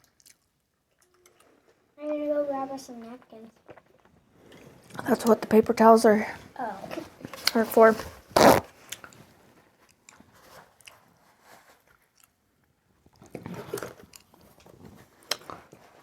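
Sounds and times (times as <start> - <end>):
chewing with wet mouth clicks: 0.0 - 1.8, 9.8 - 15.9.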